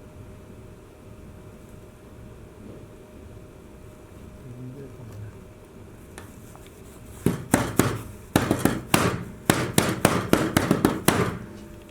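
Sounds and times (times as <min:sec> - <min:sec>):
sharp hard knocks: 0:07.2 - 0:11.6.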